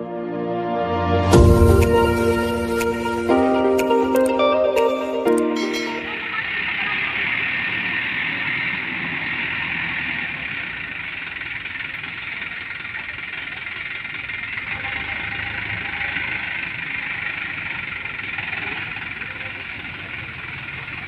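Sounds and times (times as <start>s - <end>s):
dump truck diesel engine running: 5.2s - 21.0s.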